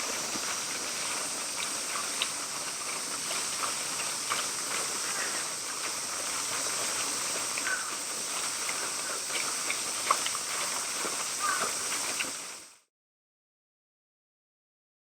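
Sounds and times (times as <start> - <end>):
steady high hiss: 0.0 - 12.8.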